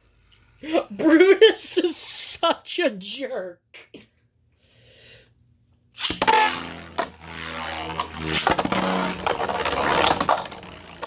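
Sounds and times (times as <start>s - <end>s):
spinning tops launched: 6.0s - 11.0s
spinning tops whirring: 6.0s - 11.0s.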